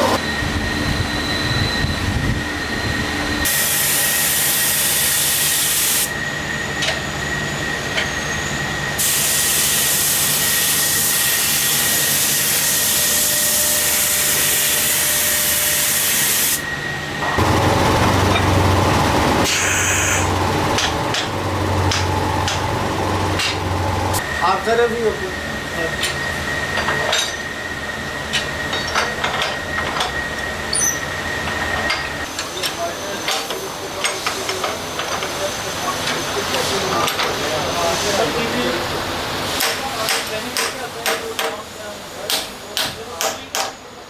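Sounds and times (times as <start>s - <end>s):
factory machinery high whine: 0.0s - 44.0s
loud hiss of air: 3.4s - 6.2s, 8.9s - 16.7s
low machine hum with clattering: 6.1s - 9.0s, 16.6s - 38.7s.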